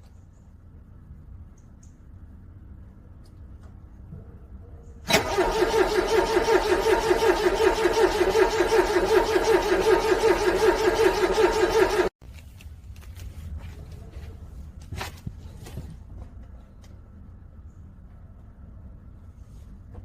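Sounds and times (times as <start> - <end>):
car starter motor cranking: 5.1 - 12.1.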